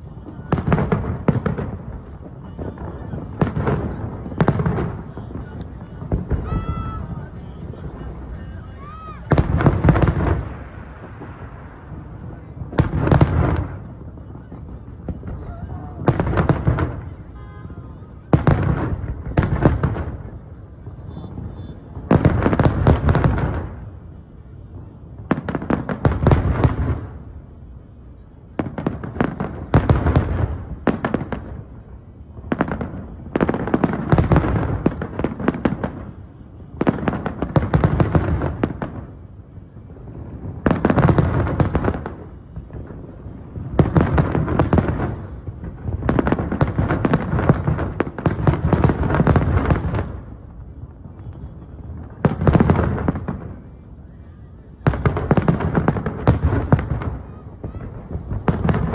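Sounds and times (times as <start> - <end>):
fireworks bangs and crackles: 0.0 - 58.9.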